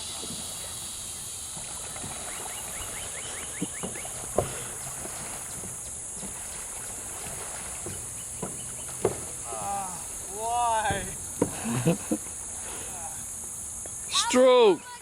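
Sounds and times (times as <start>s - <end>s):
paddles in water: 0.0s - 15.0s
steady high hiss: 0.0s - 15.0s
knocks against raft: 3.5s - 6.6s, 7.2s - 9.7s, 10.8s - 11.8s.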